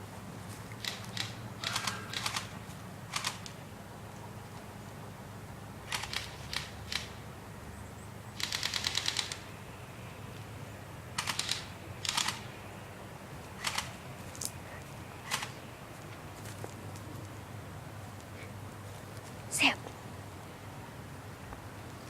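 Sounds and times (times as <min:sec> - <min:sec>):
rapid burst of airsoft shots: 0:00.8 - 0:02.5, 0:08.4 - 0:09.4, 0:11.2 - 0:12.5.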